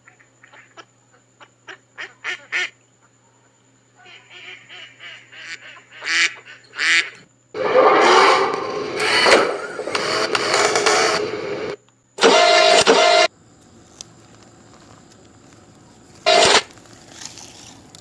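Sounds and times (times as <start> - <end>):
ducks or geese quacking: 0.0 - 3.1, 4.0 - 8.5
loud engine noise: 7.6 - 13.3, 14.1 - 17.0.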